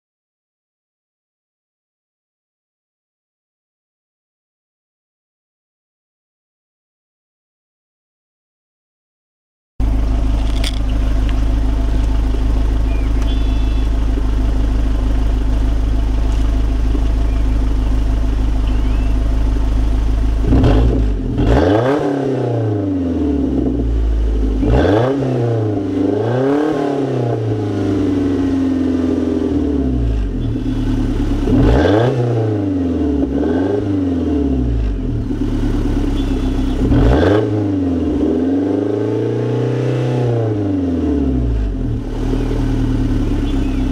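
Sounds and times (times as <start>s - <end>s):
car engine idling and revving: 9.8s - 43.9s.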